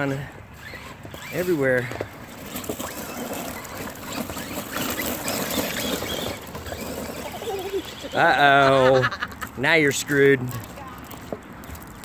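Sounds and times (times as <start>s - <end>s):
tyres spitting rocks and mud: 0.0s - 8.7s
toy trucks driving through mud: 0.0s - 12.0s.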